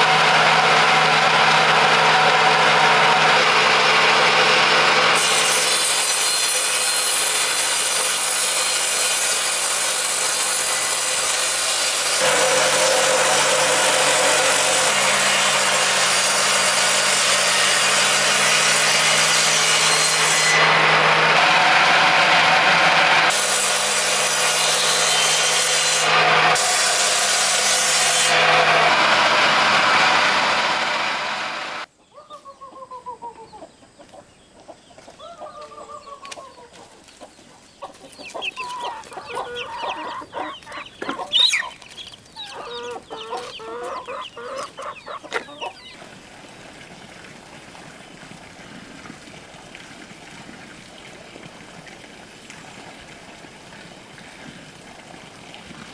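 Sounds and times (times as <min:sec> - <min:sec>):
power tool cutting wood: 0:00.0 - 0:31.9
faint bird calls: 0:32.0 - 0:46.0.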